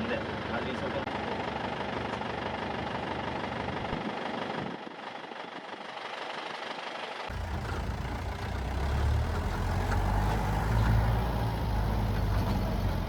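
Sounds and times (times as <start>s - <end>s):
deep heavy rumble: 7.3s - 13.0s
jeep engine running: 7.3s - 13.0s.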